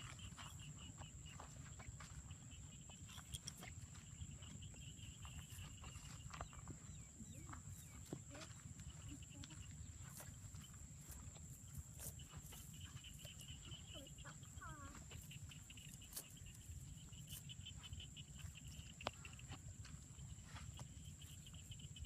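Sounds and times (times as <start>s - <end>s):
rapidly pulsing high chirping: 8.9s - 19.5s.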